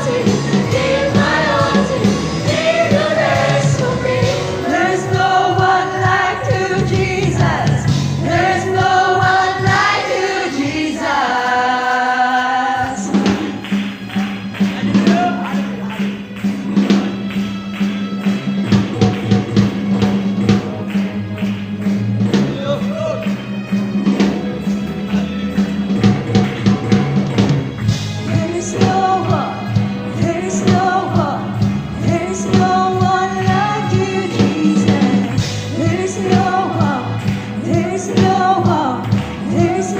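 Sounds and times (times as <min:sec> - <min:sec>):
youth choir singing gospel: 0:00.0 - 0:13.9, 0:28.2 - 0:39.9
instrumental accompaniment: 0:00.0 - 0:39.9.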